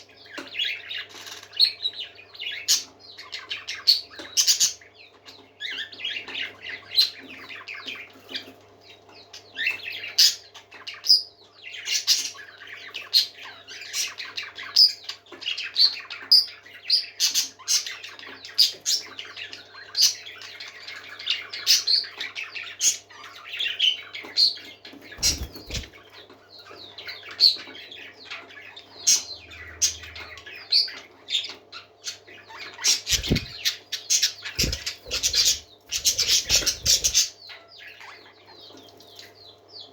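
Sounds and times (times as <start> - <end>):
parakeets chirping and chattering: 0.0 - 39.9
parakeet squawks: 25.1 - 26.0, 32.4 - 38.2
low thumps: 33.1 - 33.6.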